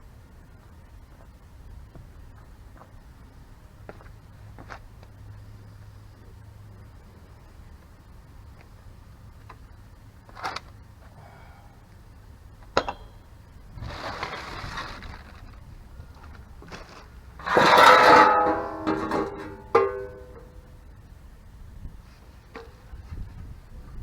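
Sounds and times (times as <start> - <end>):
hand tools clinking on metal: 17.4 - 20.6
loud metal clank ringing: 17.4 - 20.7.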